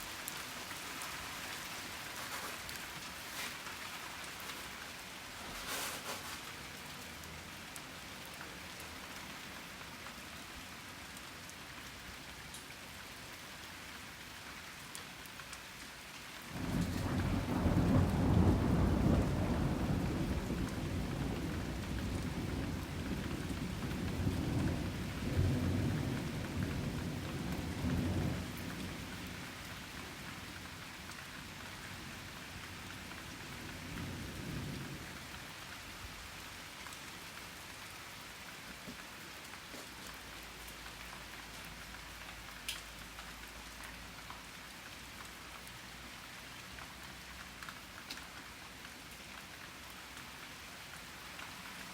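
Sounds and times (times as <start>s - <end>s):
rain falling: 0.0s - 51.9s
thunder rumbling: 16.6s - 29.4s.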